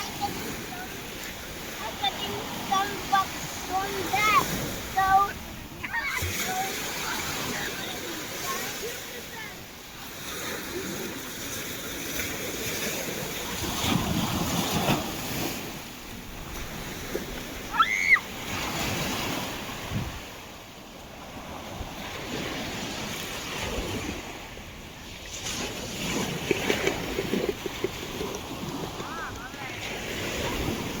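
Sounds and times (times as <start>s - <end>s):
surf washing in and out: 0.0s - 31.0s
high-pitched cry: 17.7s - 18.3s
wind on microphone: 18.4s - 20.4s.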